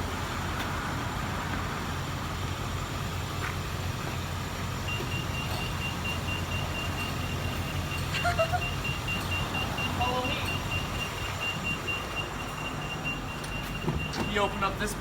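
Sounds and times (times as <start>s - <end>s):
car engine humming: 0.0s - 15.0s.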